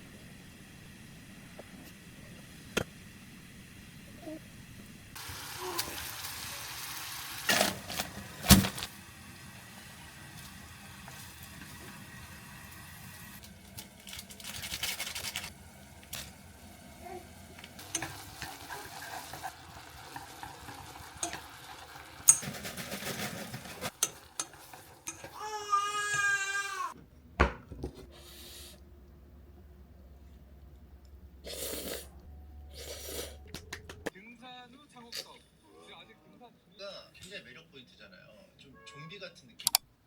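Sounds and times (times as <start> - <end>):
cooking hiss: 0.0 - 27.0
utensils clinking: 22.2 - 25.4.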